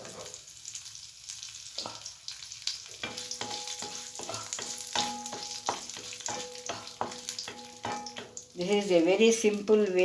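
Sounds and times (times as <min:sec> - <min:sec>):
seeds sizzling in hot oil: 0:00.0 - 0:10.0
metal spoon stirring in pan: 0:02.8 - 0:09.0.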